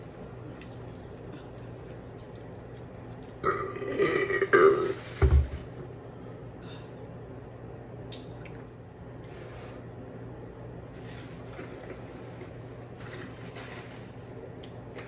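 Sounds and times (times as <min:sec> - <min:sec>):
person burping loudly: 0:03.4 - 0:05.0.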